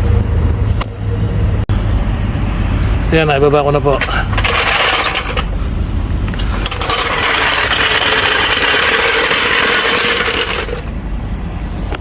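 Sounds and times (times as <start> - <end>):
power car jack whirring: 4.0 - 5.6, 6.2 - 11.0.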